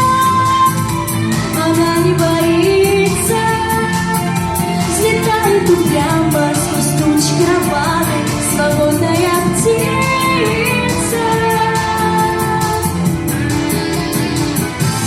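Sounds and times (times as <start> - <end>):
pop backing track with beat: 0.0 - 15.0
girl singing: 4.9 - 12.9.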